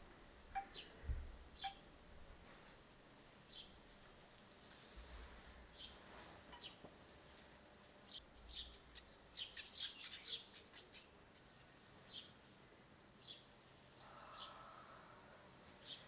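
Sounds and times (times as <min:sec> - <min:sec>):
small birds chirping: 0:00.6 - 0:01.0, 0:01.6 - 0:01.8, 0:03.5 - 0:03.8, 0:05.7 - 0:06.9, 0:08.1 - 0:12.5, 0:13.2 - 0:15.0, 0:15.8 - 0:16.0.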